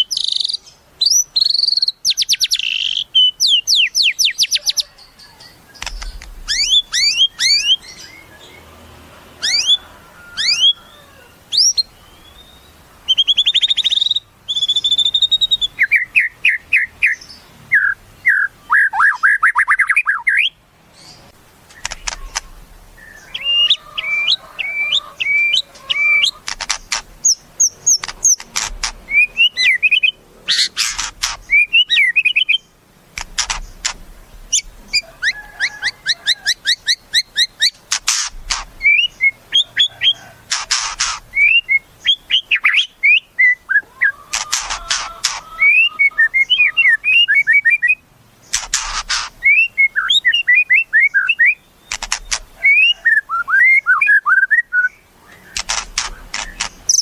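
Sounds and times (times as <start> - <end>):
bird singing whistled song: 0.0 - 8.5, 9.4 - 10.8, 11.6 - 20.6, 23.0 - 26.4, 29.1 - 30.7, 31.4 - 32.7, 38.8 - 40.3, 41.3 - 44.1, 45.0 - 48.0, 49.4 - 55.6
harsh rasping bird calls: 0.0 - 57.0.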